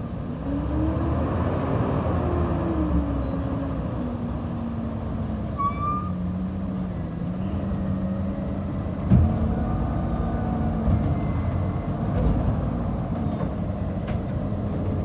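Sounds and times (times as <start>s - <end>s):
garbage truck engine droning: 0.2s - 15.0s
short high squeak: 5.6s - 6.2s.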